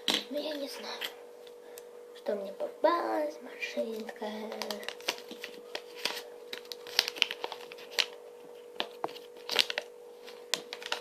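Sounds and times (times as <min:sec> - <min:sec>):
wrapper crinkling and tearing: 0:04.4 - 0:11.0.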